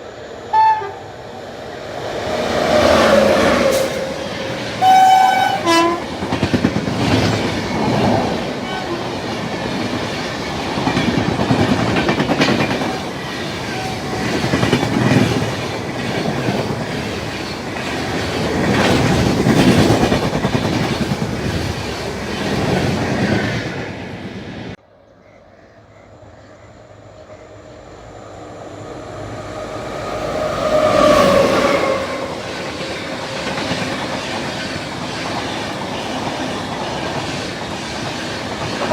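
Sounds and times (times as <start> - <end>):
train approaching: 0.0 - 38.9
train wheels clattering over rail joints: 9.1 - 23.4.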